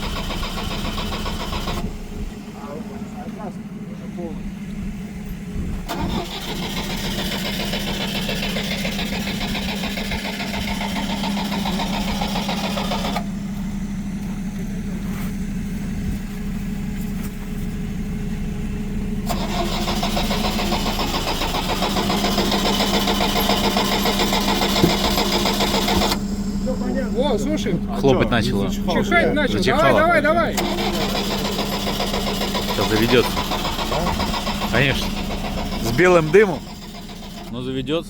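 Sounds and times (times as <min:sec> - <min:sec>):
engine starter cranking: 0:00.0 - 0:03.5, 0:05.7 - 0:13.4, 0:19.2 - 0:27.8, 0:29.6 - 0:37.7
engine idling: 0:00.0 - 0:38.0.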